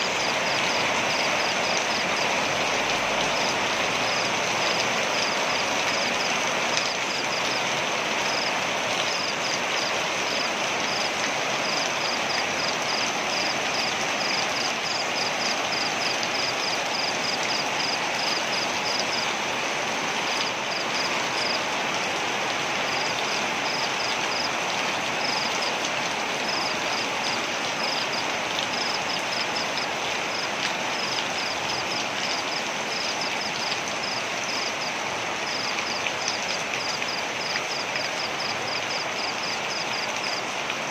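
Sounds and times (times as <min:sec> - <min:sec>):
waterfall roaring: 0:00.0 - 0:32.2.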